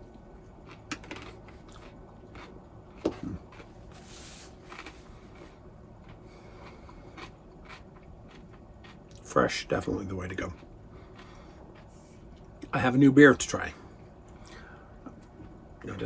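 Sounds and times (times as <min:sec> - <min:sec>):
person chewing salad: 0:00.0 - 0:09.3, 0:10.4 - 0:12.7.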